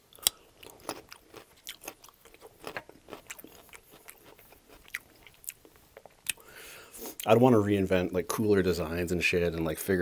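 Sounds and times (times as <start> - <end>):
crunchy carrot chewing: 0.0 - 6.4.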